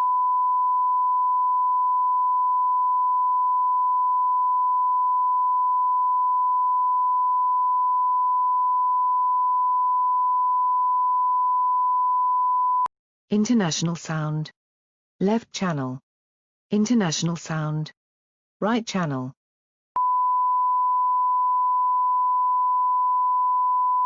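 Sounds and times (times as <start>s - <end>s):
sine wave test tone: 0.0s - 12.9s, 20.0s - 24.0s.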